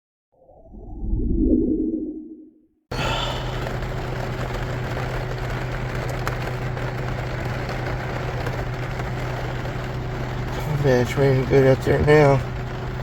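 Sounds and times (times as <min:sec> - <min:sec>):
heavy rain on a roof: 0:02.9 - 0:13.0.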